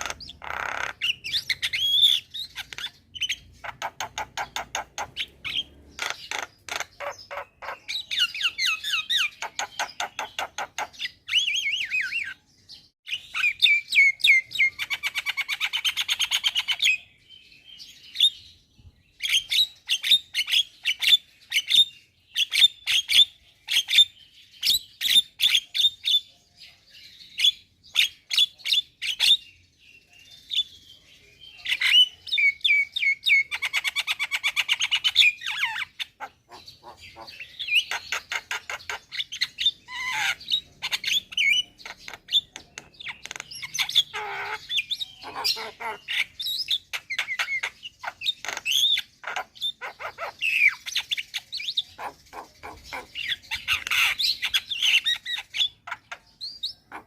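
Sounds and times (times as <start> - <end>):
bird chirps and clicks: 0.0 - 12.4, 13.0 - 17.0, 31.7 - 57.0.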